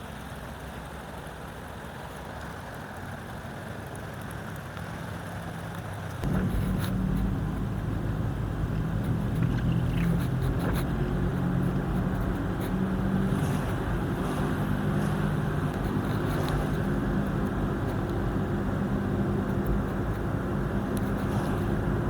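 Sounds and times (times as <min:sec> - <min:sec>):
wash of noise: 0:06.2 - 0:18.0.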